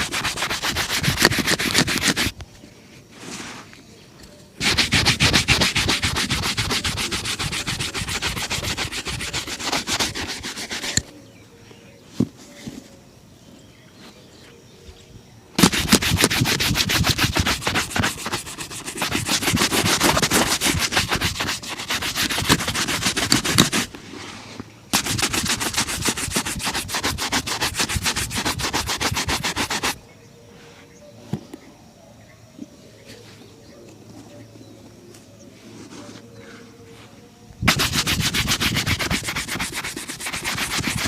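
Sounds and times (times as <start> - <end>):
shoe brush buffing strokes: 0.0 - 2.4, 4.6 - 11.1, 15.6 - 30.0, 37.7 - 41.0.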